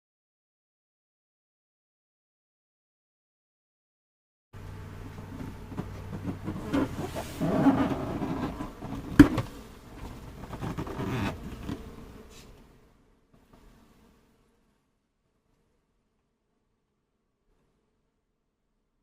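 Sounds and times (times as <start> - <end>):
bees buzzing: 4.6 - 14.8
knocking and handling noises: 5.1 - 11.9.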